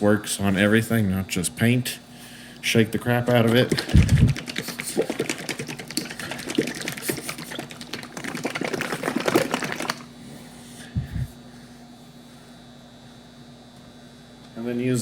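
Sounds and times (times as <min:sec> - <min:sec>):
bottle being shaken: 0:03.3 - 0:10.1
liquid sloshing: 0:03.3 - 0:10.1.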